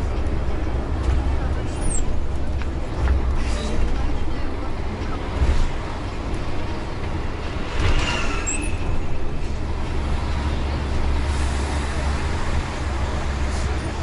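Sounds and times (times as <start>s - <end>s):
bus engine and road rumble: 0.0s - 14.0s
faint squeal: 8.0s - 9.0s.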